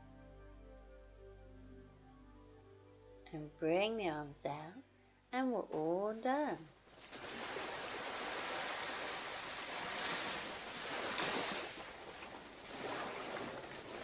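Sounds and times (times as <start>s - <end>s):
surf washing onto a beach: 7.0s - 14.0s.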